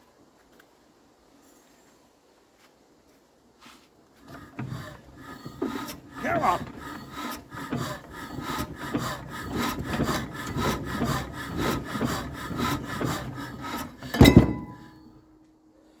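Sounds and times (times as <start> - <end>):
engine turned over by hand crank: 4.2 - 15.2.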